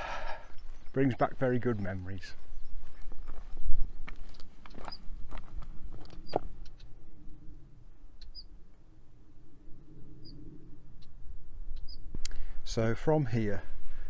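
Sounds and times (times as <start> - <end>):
bird chirping: 0.0 - 5.1, 6.1 - 7.0, 8.1 - 8.6, 10.2 - 12.1
wind rumble on microphone: 2.2 - 14.0.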